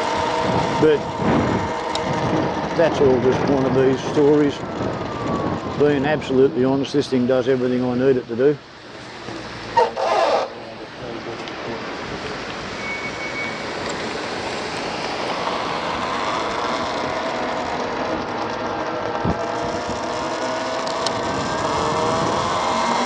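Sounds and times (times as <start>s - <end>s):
electric motor whine rising: 0.0s - 6.8s, 12.6s - 23.0s
wind rushing over microphone: 0.0s - 7.3s, 13.8s - 23.0s
road noise: 0.0s - 23.0s.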